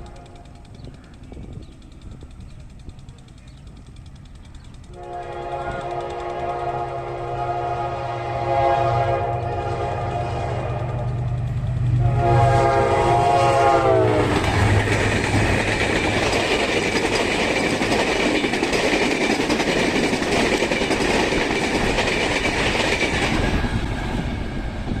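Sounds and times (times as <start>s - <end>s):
locomotive horn blasts: 0.0s - 0.5s, 5.0s - 11.1s, 12.0s - 14.4s
locomotive engine drone: 0.0s - 18.5s
train rumbling and clattering past: 0.0s - 25.0s.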